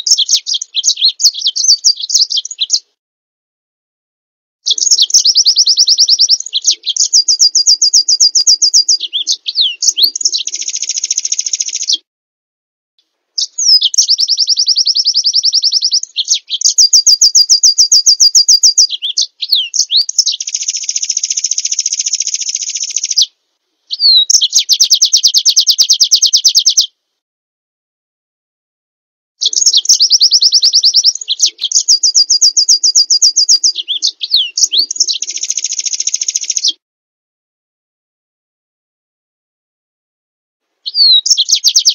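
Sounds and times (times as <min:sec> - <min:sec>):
songbird trilling song: 0:00.0 - 0:03.0, 0:04.7 - 0:12.0, 0:13.0 - 0:27.0, 0:29.4 - 0:36.8, 0:40.8 - 0:41.9.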